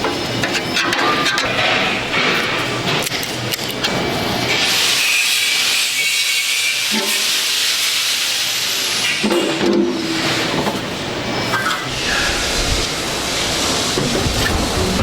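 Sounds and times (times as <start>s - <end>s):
clicking and clattering workshop noise: 0.0s - 15.0s
loud steady high hiss: 11.0s - 15.0s.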